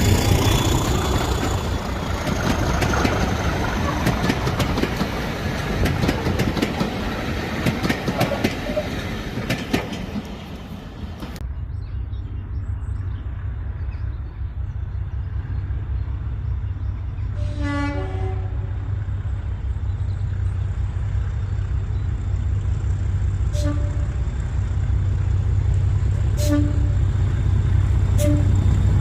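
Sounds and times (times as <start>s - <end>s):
train rumble: 0.0s - 29.0s
locomotive horn: 17.3s - 18.9s, 23.5s - 24.3s, 26.2s - 27.2s, 28.1s - 28.8s.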